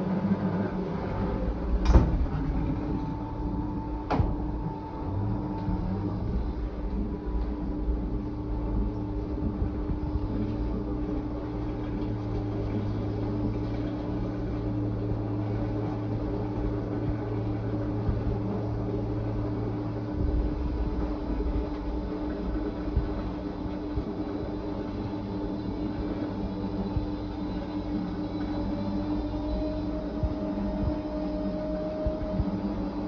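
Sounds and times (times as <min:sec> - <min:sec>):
washing machine motor hum: 0:00.0 - 0:33.0.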